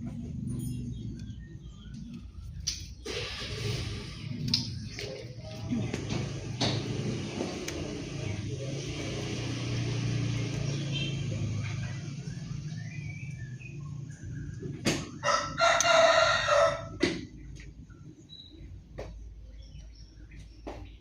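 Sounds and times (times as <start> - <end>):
small birds chirping: 0.0 - 21.0
rooster crowing: 15.1 - 17.1.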